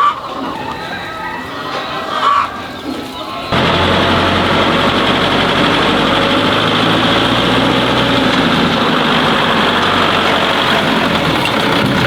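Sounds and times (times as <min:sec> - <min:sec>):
engine running steadily: 0:03.5 - 0:12.0.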